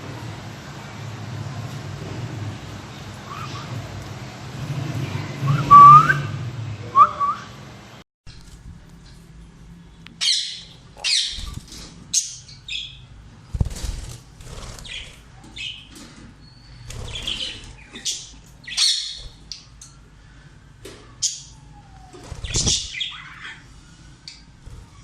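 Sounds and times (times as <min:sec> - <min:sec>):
parrots screeching: 0:10.2 - 0:11.6, 0:17.1 - 0:19.3, 0:22.4 - 0:23.6.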